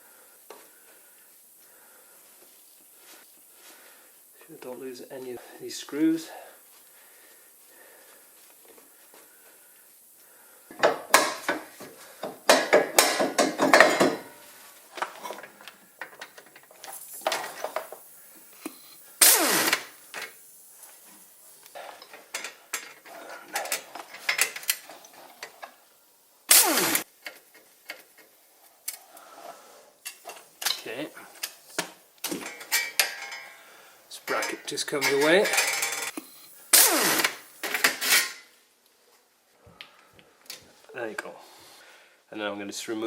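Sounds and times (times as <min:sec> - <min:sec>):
metal parts clinking: 0:32.3 - 0:33.6, 0:34.4 - 0:36.2, 0:37.6 - 0:38.4
ratchet wrench clicking: 0:35.1 - 0:38.3.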